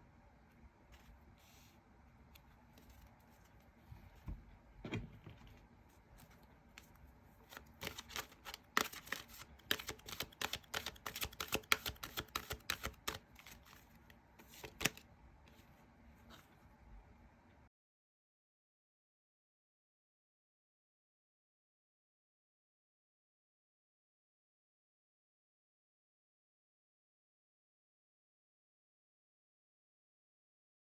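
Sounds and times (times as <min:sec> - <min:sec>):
cards being shuffled: 0:06.2 - 0:15.0.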